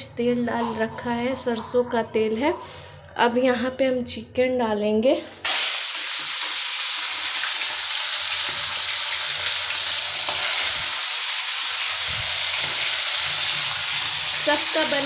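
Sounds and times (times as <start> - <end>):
chicken sizzling in hot oil: 5.4 - 15.0.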